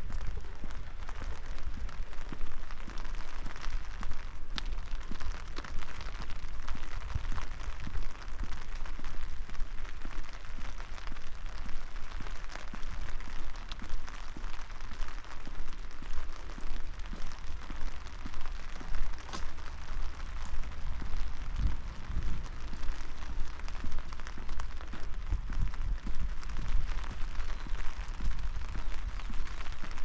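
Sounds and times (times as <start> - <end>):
rain patter: 0.0 - 30.0
low rumble: 17.2 - 30.0.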